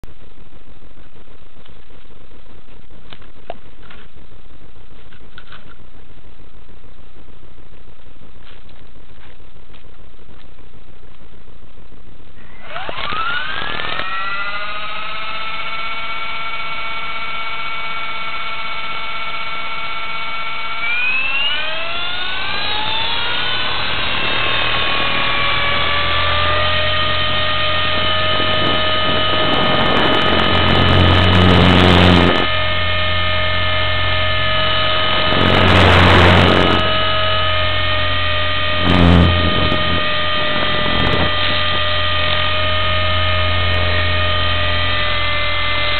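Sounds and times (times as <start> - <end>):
helicopter engine and rotor whine: 12.6 - 45.9.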